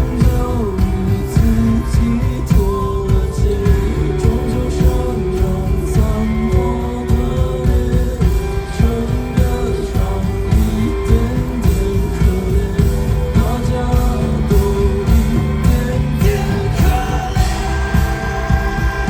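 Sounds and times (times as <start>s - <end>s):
bass guitar: 0.0s - 19.0s
guitar: 0.0s - 19.0s
person singing: 0.0s - 19.0s
steady drum beat: 0.0s - 19.0s.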